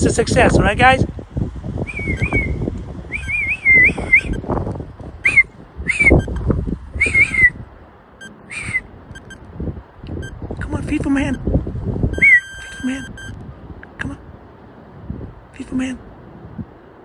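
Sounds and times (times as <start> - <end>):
wind buffeting microphone: 0.0 - 17.0
man whistling warbling call: 1.9 - 4.4, 5.2 - 6.4, 7.0 - 7.6, 8.2 - 9.4, 12.2 - 13.3.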